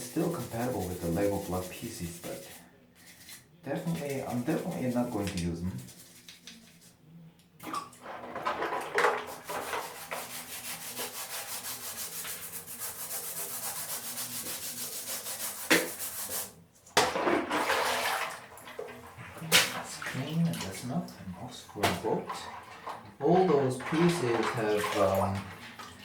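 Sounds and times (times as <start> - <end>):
toothbrush scrubbing plastic pieces: 0.0 - 7.0, 8.3 - 16.5.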